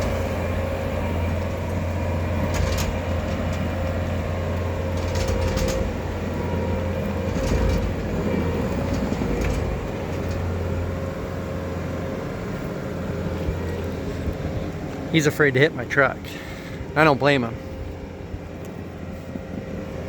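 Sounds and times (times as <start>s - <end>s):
short rattles and clanks: 0.0s - 11.2s
diesel engine running: 0.0s - 20.0s.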